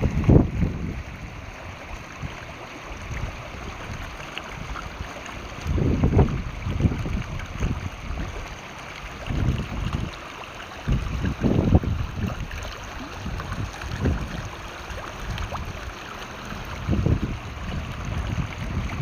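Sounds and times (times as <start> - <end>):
mountain river rushing: 0.0 - 19.0
wind buffeting microphone: 0.0 - 19.0.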